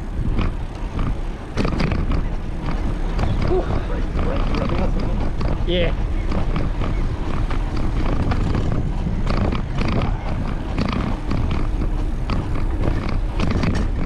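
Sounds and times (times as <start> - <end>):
bicycle tyre noise: 0.0 - 14.0
bike clicks and rattles: 0.0 - 14.0
wind buffeting microphone: 0.0 - 14.0.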